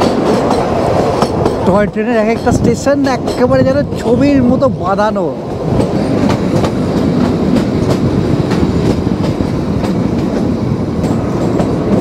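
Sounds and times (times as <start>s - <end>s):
train rumbling on track: 0.0s - 12.0s
wheels clicking over rail joints: 5.4s - 12.0s.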